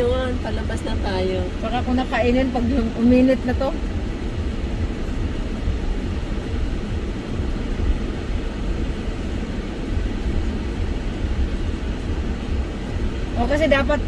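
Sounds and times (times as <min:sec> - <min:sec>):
vehicle engine and road noise: 0:00.0 - 0:14.0.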